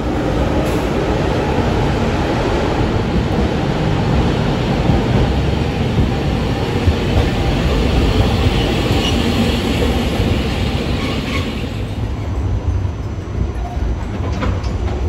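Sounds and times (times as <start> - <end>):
streetcar wheels rumbling on rails: 0.0 - 15.0.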